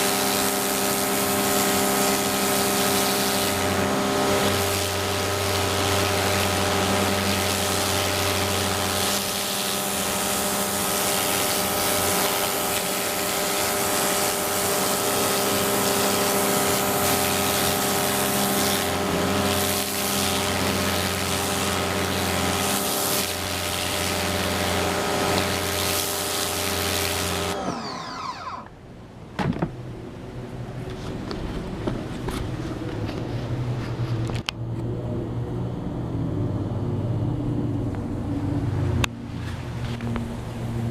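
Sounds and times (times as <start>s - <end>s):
water spray hissing: 0.0s - 27.6s
pressure washer motor humming: 0.0s - 34.4s.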